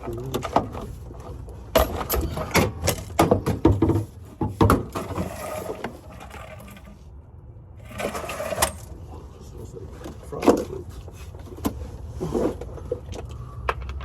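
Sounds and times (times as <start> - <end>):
hand tools clicking and clanking: 0.0 - 7.0.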